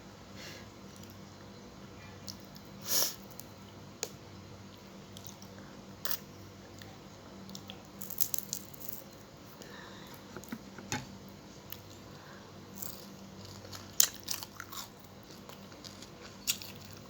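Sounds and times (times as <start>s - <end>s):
faint low hum: 0.0s - 17.0s
chewing fried fish: 11.6s - 17.0s.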